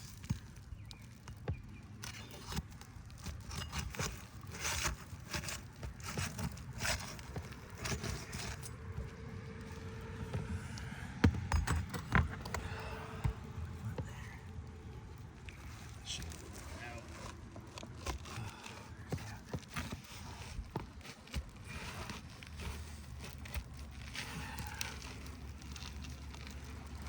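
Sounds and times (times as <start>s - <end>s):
roof shingle scraping and crackling: 0.0s - 27.0s
steady low rumble: 8.5s - 17.8s.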